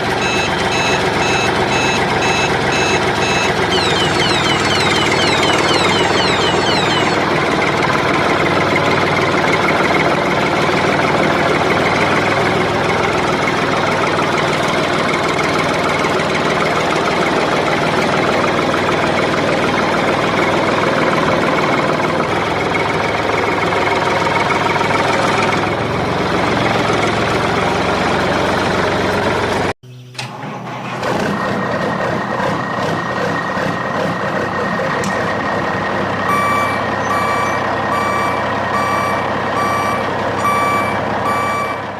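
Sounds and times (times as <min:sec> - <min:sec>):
reversing beeps: 0:00.0 - 0:07.2, 0:36.3 - 0:41.9
truck engine knocking rumble: 0:00.0 - 0:29.7, 0:30.8 - 0:41.9.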